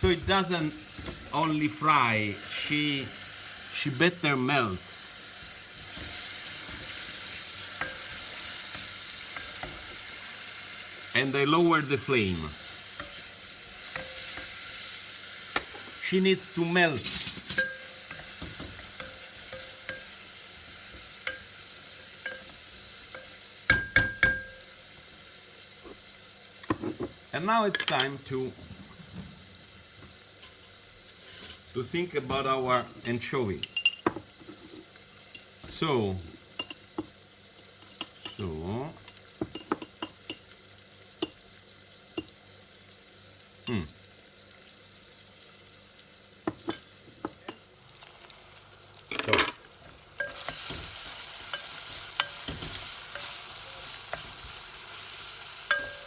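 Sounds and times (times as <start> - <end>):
onion sizzling in oil: 0.0 - 56.0
utensil tapping pan: 5.8 - 10.2, 12.1 - 14.7, 15.5 - 16.1, 16.8 - 24.8, 50.2 - 56.0
utensil knocking against pan: 23.2 - 24.6.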